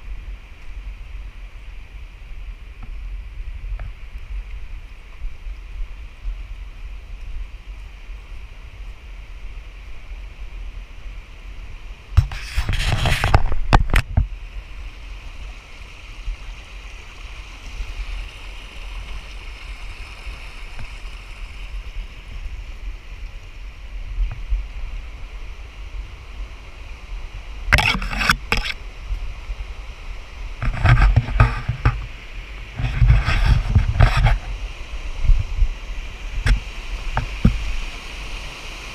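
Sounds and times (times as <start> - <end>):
creek water running: 0.0 - 38.9
wind rumble on microphone: 0.0 - 38.9
rubbing on microphone: 12.2 - 14.3, 27.7 - 28.8, 30.6 - 34.7, 36.3 - 37.9.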